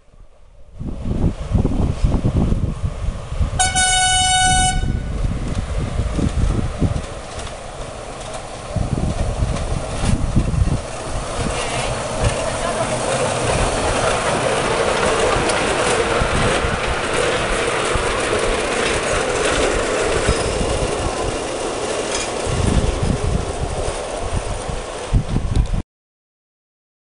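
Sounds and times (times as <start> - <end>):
train wheels clattering on rails: 5.2 - 25.8.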